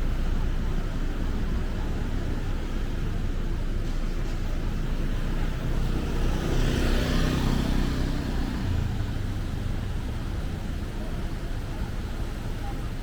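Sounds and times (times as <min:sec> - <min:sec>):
traffic hum: 0:00.0 - 0:13.0.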